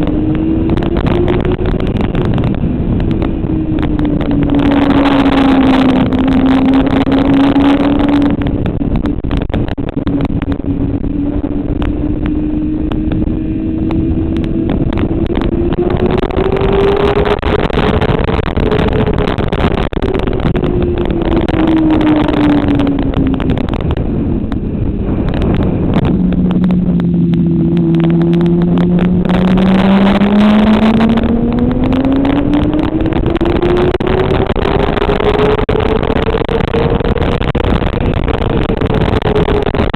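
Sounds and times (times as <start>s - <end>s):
motorcycle engine revving: 0.0s - 39.9s
wind rush over microphone: 0.0s - 39.9s.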